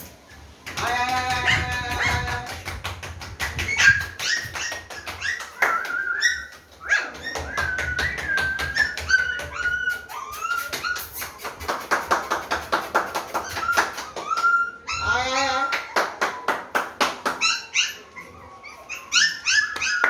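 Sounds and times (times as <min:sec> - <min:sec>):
puppies whining: 0:03.4 - 0:11.4, 0:13.4 - 0:16.5, 0:17.3 - 0:20.0.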